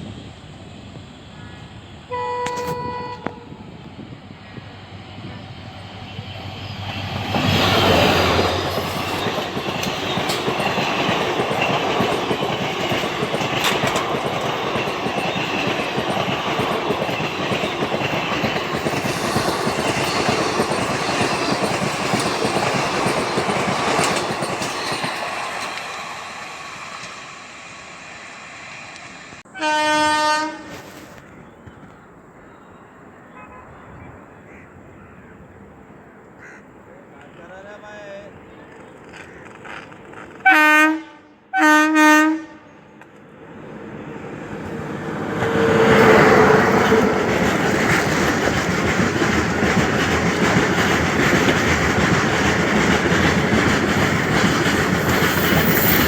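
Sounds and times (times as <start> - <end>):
locomotive horn blast: 2.1 - 3.7, 29.5 - 30.9, 33.4 - 34.0, 40.4 - 42.8
train wheels clattering on rails: 5.7 - 27.3, 44.6 - 56.0.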